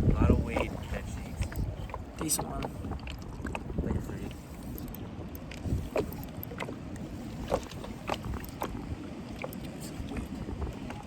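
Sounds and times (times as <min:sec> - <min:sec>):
choppy water splashing: 0:00.0 - 0:11.0
wind on microphone: 0:00.0 - 0:11.0.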